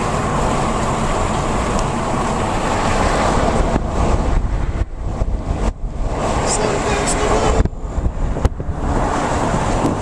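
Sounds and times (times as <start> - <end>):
car road noise at highway speed: 0.0 - 10.0.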